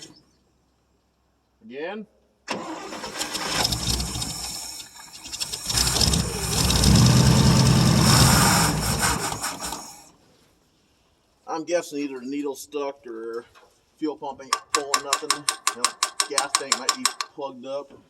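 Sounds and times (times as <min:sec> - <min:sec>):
engine cranking and running: 0:02.5 - 0:10.1.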